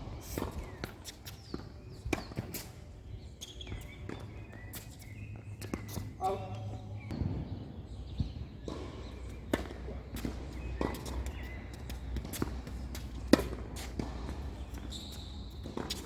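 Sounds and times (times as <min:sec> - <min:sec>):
tennis ball struck by rackets: 0:00.2 - 0:02.8, 0:07.0 - 0:16.0.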